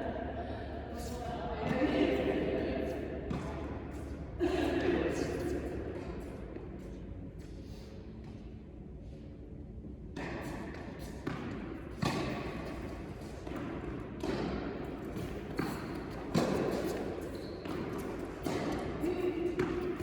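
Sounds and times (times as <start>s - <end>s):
tennis ball bouncing on court: 10.2s - 20.0s
tennis ball hit by rackets: 10.2s - 20.0s.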